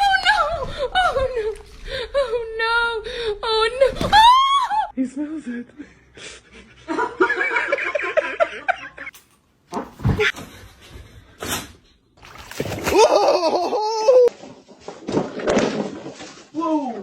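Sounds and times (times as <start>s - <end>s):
person laughing: 12.9s - 14.3s.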